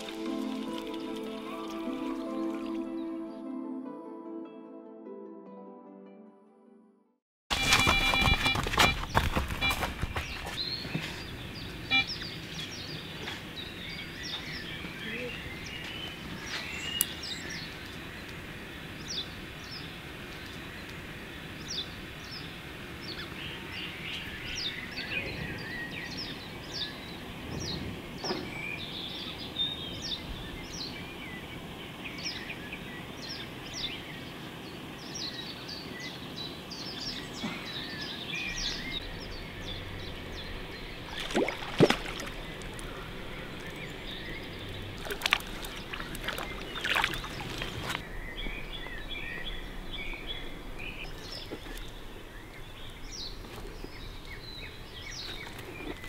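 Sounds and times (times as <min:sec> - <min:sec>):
birds chirping and singing: 0:07.6 - 0:56.0.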